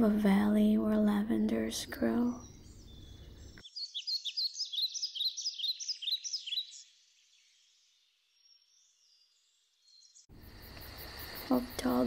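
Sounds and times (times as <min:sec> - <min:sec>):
birds chirping high notes: 0:01.6 - 0:10.3.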